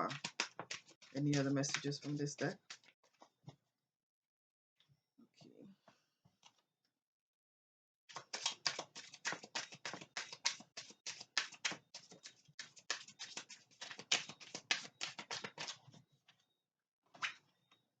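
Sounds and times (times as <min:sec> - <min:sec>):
cards being shuffled by hand: 0:00.0 - 0:03.3, 0:08.1 - 0:15.8.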